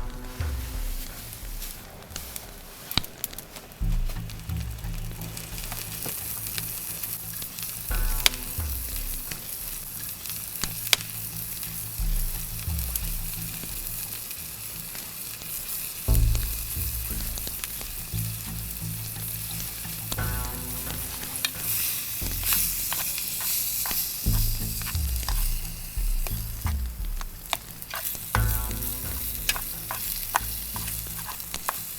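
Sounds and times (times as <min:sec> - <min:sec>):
food sizzling in a pan: 0:05.2 - 0:31.9
utensil clicking on pan: 0:18.6 - 0:31.9.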